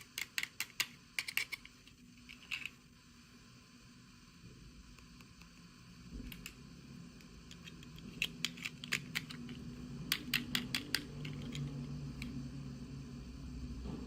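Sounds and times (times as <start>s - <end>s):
plastic miniatures clicking: 0.0s - 2.7s, 7.5s - 12.3s.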